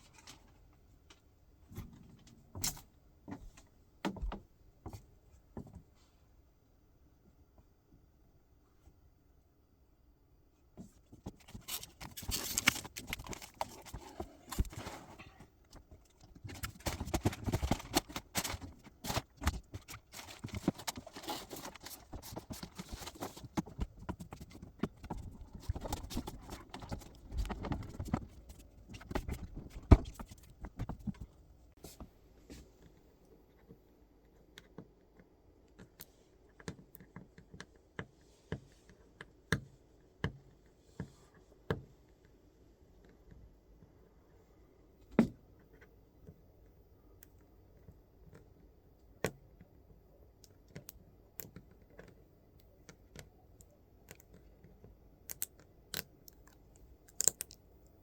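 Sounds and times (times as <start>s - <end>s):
handling knocks and clicks: 10.8s - 31.4s.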